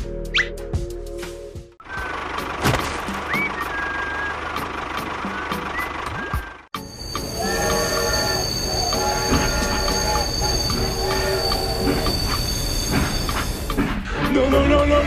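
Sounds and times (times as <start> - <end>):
high-pitched squeal: 6.8 - 13.7
train horn blasts: 6.9 - 13.1.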